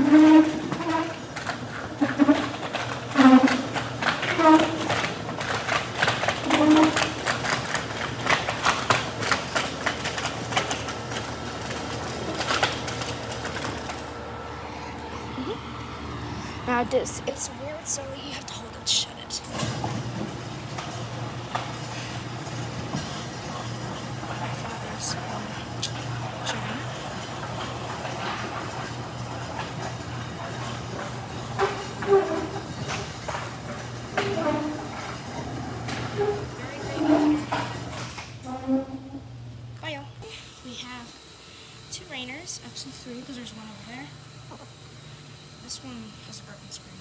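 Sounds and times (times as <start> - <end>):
garage door squeaking and clacking: 0.0 - 9.3, 25.9 - 39.4
motor hum: 0.0 - 47.0.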